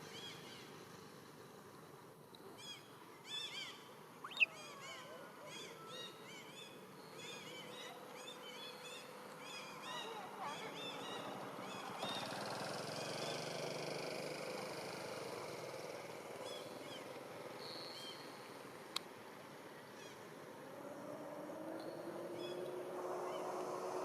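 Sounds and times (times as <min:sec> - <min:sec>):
high animal chirps: 0:04.2 - 0:04.6.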